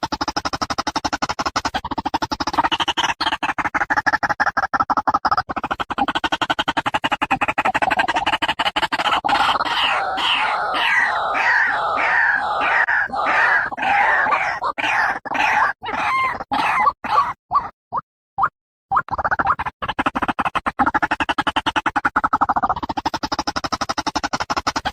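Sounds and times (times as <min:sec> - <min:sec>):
waterhen calling: 0:09.3 - 0:17.4.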